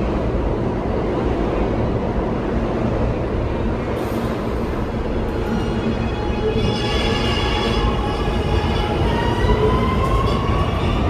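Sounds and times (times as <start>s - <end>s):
subway train rumbling: 0.0s - 11.0s
high-pitched train squeal: 4.0s - 11.0s.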